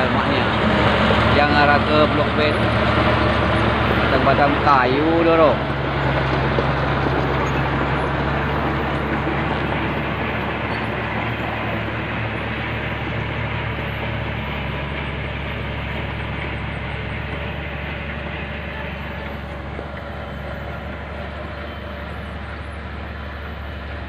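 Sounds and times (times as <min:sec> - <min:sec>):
bulldozer diesel engine: 0:00.0 - 0:24.0.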